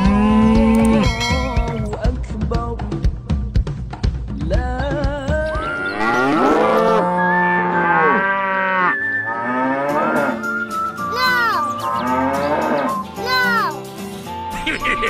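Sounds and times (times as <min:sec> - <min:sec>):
cattle mooing: 0:00.0 - 0:01.5, 0:05.9 - 0:10.5, 0:12.0 - 0:13.0.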